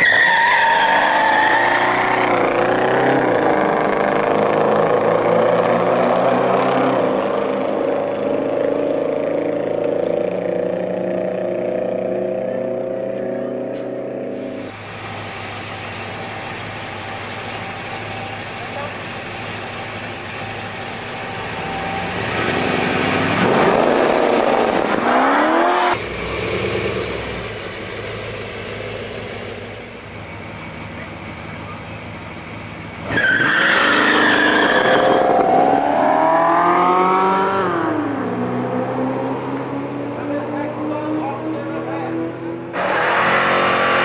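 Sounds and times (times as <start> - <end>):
car engine revving: 0.0 - 44.0
cars accelerating at full throttle: 0.0 - 44.0
car engines idling: 6.9 - 25.1, 25.9 - 33.6.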